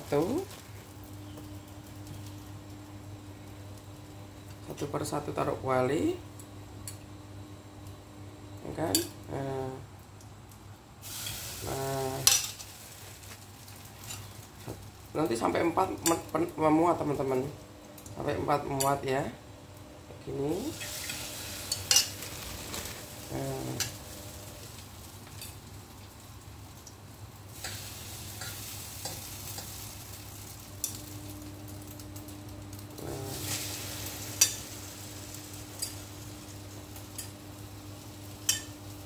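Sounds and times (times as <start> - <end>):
bread frying in butter: 0.0 - 5.6, 6.5 - 19.1, 20.3 - 39.0.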